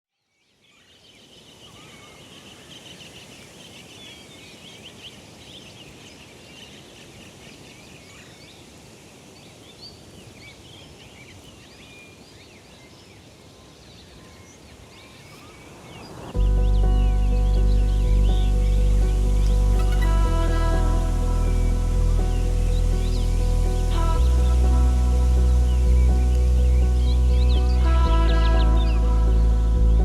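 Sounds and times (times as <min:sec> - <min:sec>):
small birds chirping: 0:00.3 - 0:30.0
steady rushing noise: 0:15.0 - 0:30.0.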